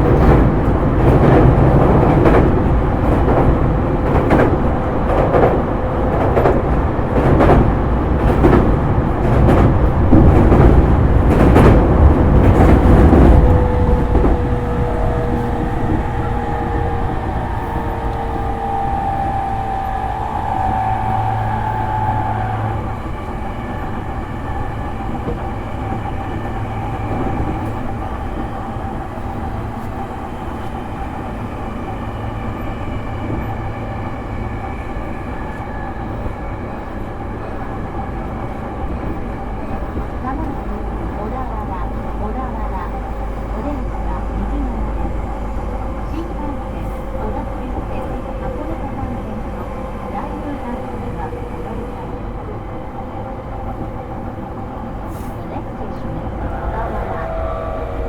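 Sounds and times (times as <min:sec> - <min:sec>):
train wheels clattering over rail joints: 0:00.0 - 0:20.0
train rumble: 0:00.0 - 0:58.0.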